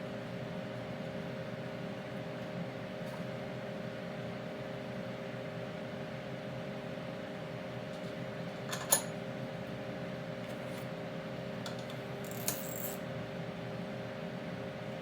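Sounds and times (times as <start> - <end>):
steady shop hum: 7.8 - 13.1
metal tools clinking: 12.3 - 13.0.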